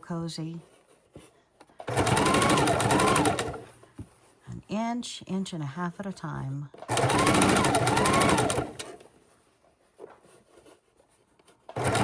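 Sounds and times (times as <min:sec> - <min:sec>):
electric sewing machine stitching: 0:01.8 - 0:03.8, 0:06.9 - 0:09.0, 0:11.7 - 0:12.0.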